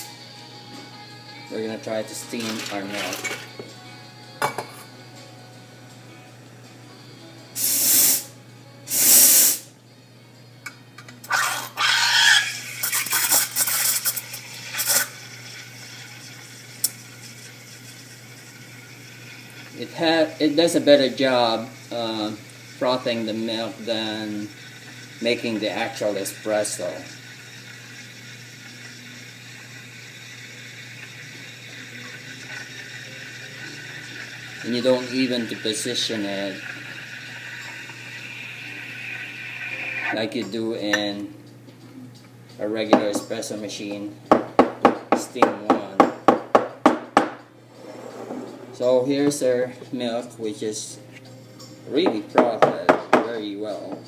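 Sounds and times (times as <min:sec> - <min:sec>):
steam wand hissing: 0:07.6 - 0:08.3, 0:08.9 - 0:09.7, 0:20.3 - 0:40.2.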